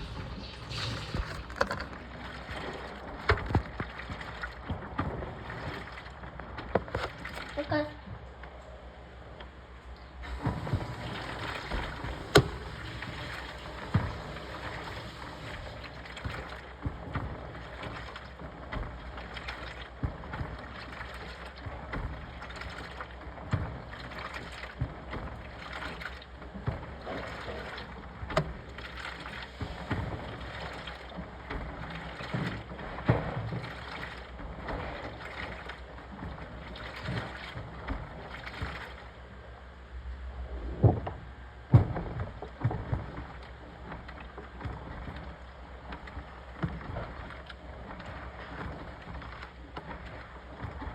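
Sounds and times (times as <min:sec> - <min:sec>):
laundry sloshing in washing machine: 0:00.0 - 0:50.9
washing machine knocks: 0:10.4 - 0:14.4, 0:41.7 - 0:43.2.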